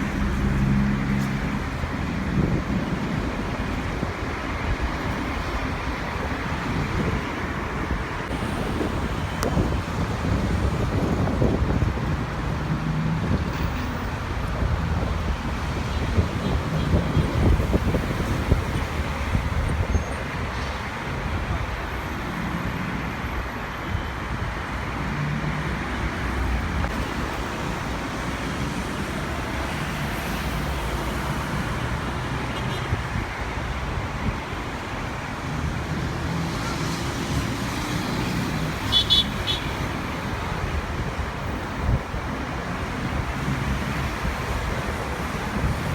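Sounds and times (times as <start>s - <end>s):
wind gusting on microphone: 0.0s - 22.4s, 23.9s - 45.9s.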